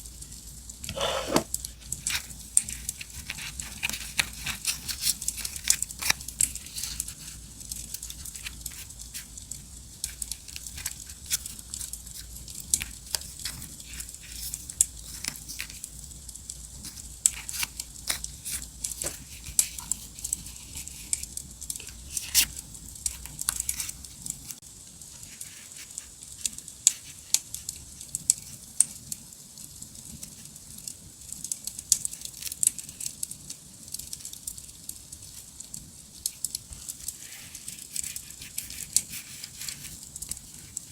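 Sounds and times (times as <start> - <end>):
paper and stickers crinkling: 0.9 - 16.0, 16.8 - 28.6, 36.2 - 40.9.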